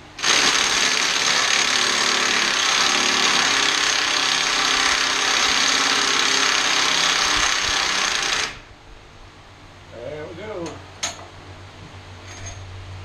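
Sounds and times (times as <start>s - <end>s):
power tool motor hum and whine: 0.2s - 8.7s.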